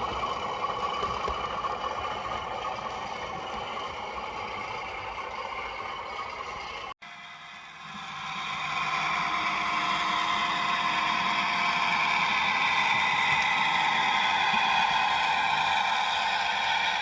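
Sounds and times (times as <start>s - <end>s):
model train motor and wheels running: 0.0s - 17.0s.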